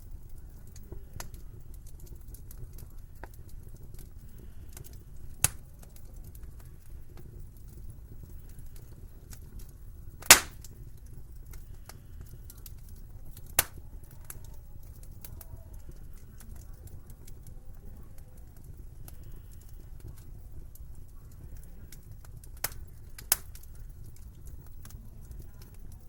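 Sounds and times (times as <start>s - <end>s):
wood fire crackling: 0.0s - 26.0s
loud sharp pops of fire: 0.1s - 17.6s, 18.2s - 26.0s.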